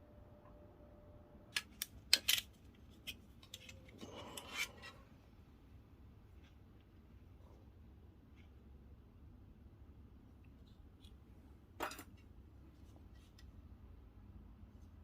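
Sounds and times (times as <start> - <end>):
sharp clicks and snaps: 1.5 - 2.5.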